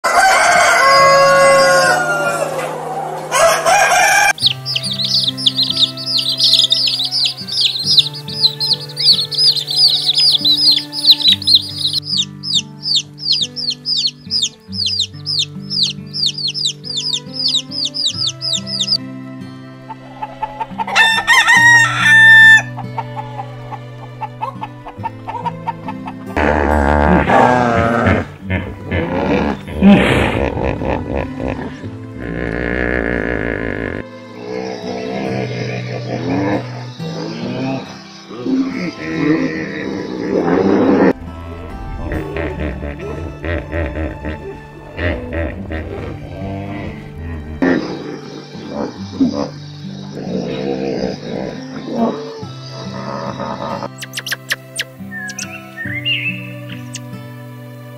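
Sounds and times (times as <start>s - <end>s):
rooster crowing: 0.0s - 4.5s, 20.0s - 23.5s
soft background music: 0.0s - 57.9s
chicks peeping: 3.3s - 19.0s
hippopotamus grunt: 26.4s - 54.0s.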